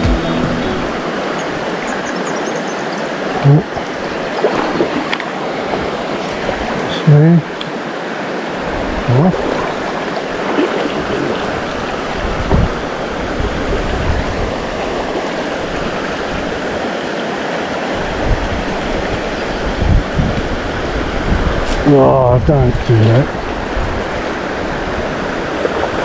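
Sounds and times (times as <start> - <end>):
stream babbling over rocks: 21.8 - 26.0.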